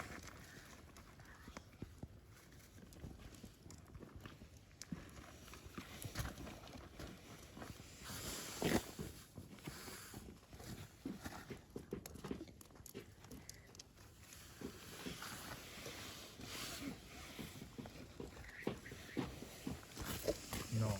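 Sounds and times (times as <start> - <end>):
hissing flame: 13.2 - 20.9.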